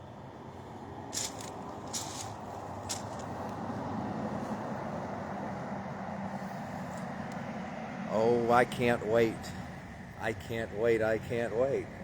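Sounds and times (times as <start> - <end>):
road traffic noise: 0.0 - 12.0
short scuffs: 1.1 - 3.3.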